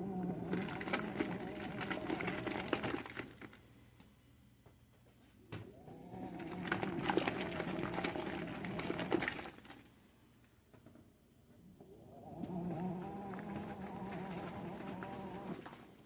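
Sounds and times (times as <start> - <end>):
washing machine spin motor: 0.0 - 3.8, 5.5 - 10.0, 11.7 - 16.0.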